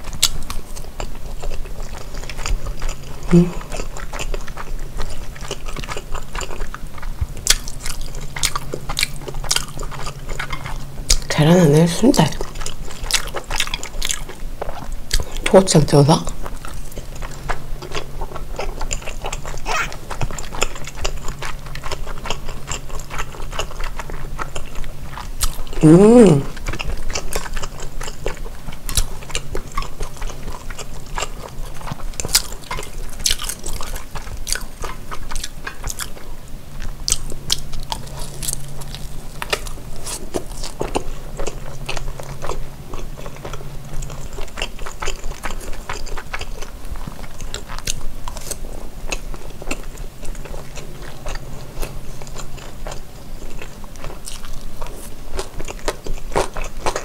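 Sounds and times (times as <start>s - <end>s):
chewing and biting food: 0.0s - 57.0s.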